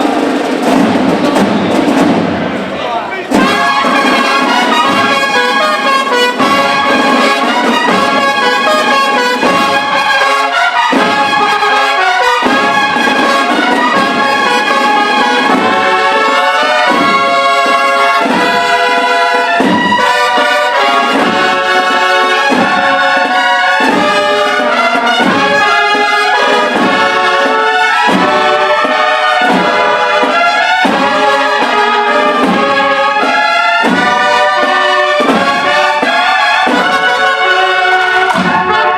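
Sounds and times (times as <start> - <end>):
brass band playing a march: 0.0 - 38.9.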